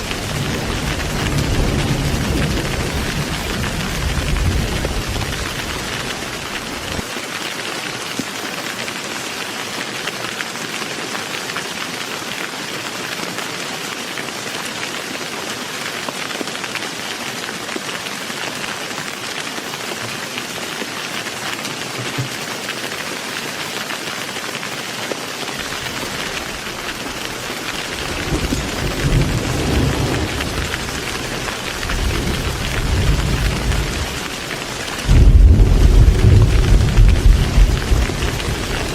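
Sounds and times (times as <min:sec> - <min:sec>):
thunder rumbling: 0:00.0 - 0:07.0, 0:25.6 - 0:38.9
heavy rain: 0:00.0 - 0:38.9.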